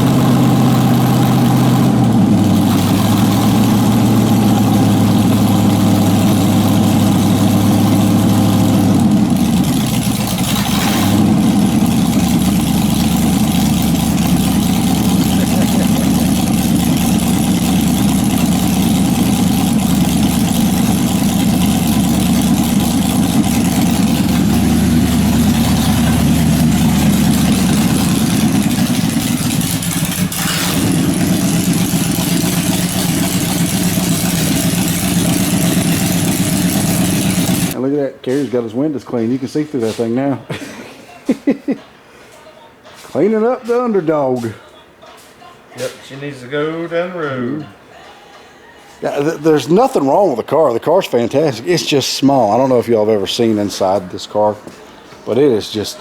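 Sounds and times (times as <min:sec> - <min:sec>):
vehicle engine idling: 0:00.0 - 0:37.8, 0:50.8 - 0:56.0.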